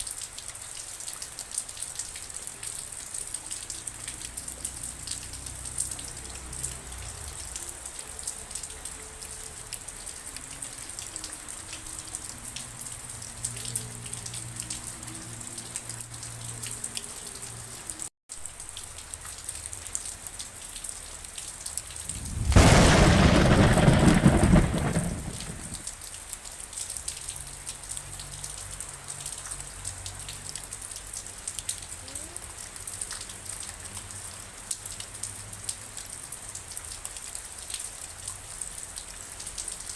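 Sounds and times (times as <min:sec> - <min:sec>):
steady rain falling: 0:00.0 - 0:39.9
thunderclap rumbling: 0:21.9 - 0:25.9.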